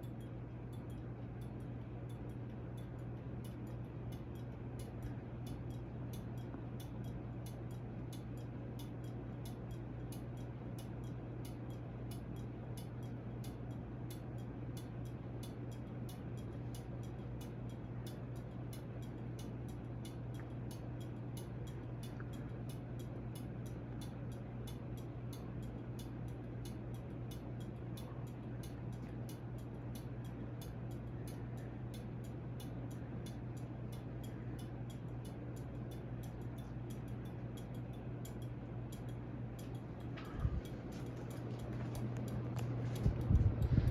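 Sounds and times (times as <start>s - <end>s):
ceiling fan motor hum: 0.0s - 43.9s
light even ticking: 0.0s - 43.9s.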